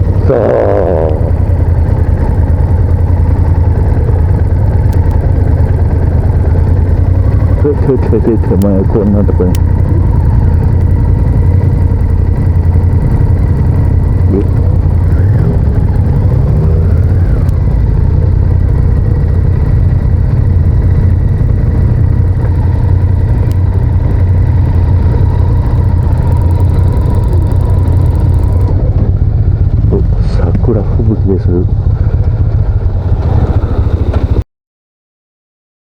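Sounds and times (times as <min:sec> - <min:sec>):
motorcycle engine running: 0:00.0 - 0:34.4.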